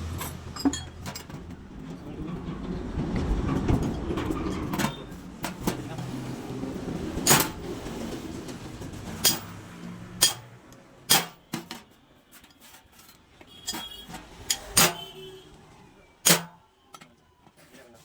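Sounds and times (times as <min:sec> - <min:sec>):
metal tools clinking: 0:00.0 - 0:01.6, 0:09.2 - 0:09.6, 0:11.1 - 0:15.1.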